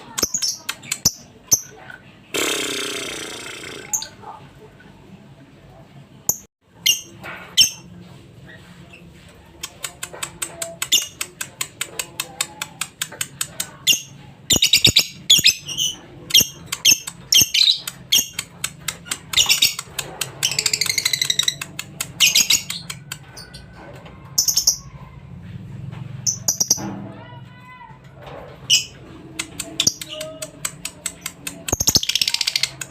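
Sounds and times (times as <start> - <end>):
lovebird chirping and trilling: 13.8 - 23.5, 26.2 - 26.9, 31.1 - 32.8.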